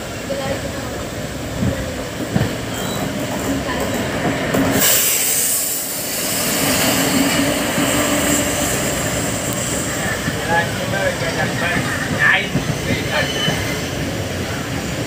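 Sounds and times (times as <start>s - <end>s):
passing train rushing: 0.0s - 15.0s
wheel and rail rumble: 0.0s - 15.0s
wheel squeal: 2.7s - 3.2s, 12.5s - 14.0s.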